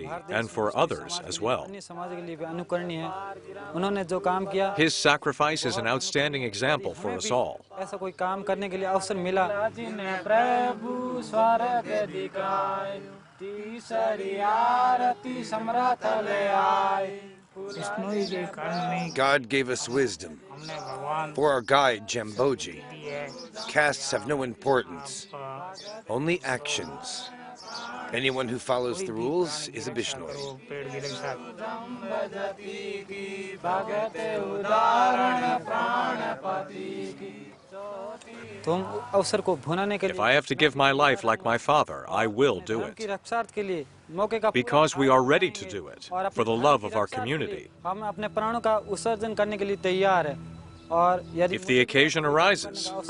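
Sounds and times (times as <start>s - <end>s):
man chanting: 0.0s - 9.9s, 17.7s - 27.4s, 28.0s - 31.5s, 38.4s - 43.2s, 44.1s - 53.0s.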